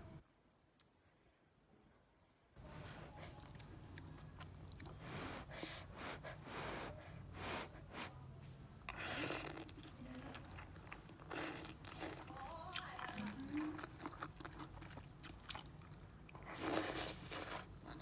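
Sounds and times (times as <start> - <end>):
chewing noodles: 3.1 - 8.1, 8.8 - 18.0
loud slurps: 16.4 - 17.7.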